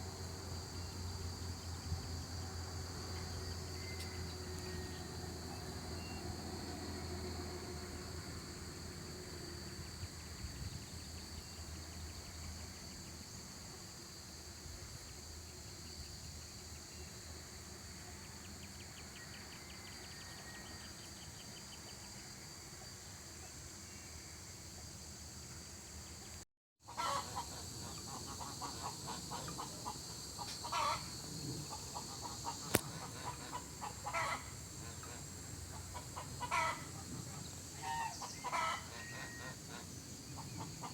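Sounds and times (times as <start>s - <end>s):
farmyard fowl calling: 26.9s - 31.1s, 31.7s - 40.9s.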